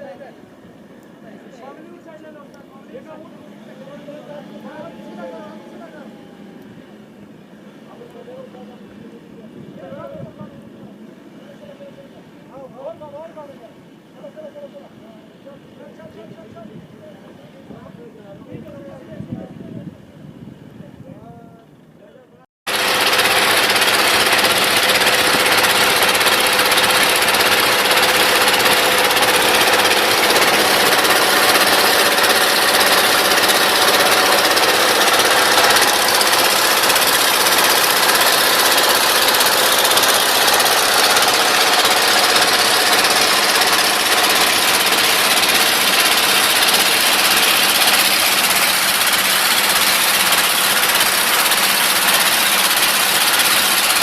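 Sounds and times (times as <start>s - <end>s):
boat engine chugging: 22.7s - 54.0s.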